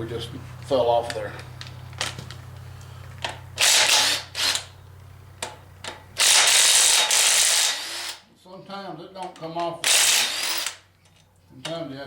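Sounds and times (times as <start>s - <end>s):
steady low hum: 0.0s - 9.6s
impact wrench running: 1.6s - 4.8s, 5.4s - 8.2s, 9.8s - 10.9s.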